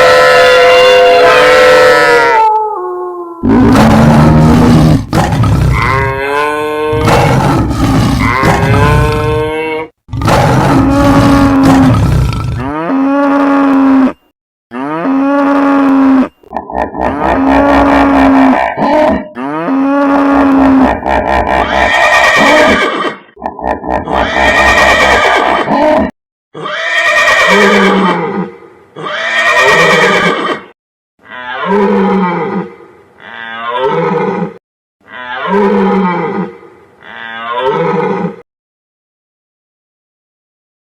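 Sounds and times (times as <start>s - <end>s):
moo-like animal call: 0.0s - 22.8s, 31.2s - 38.4s
horse whinnies: 14.8s - 23.2s, 24.0s - 30.7s.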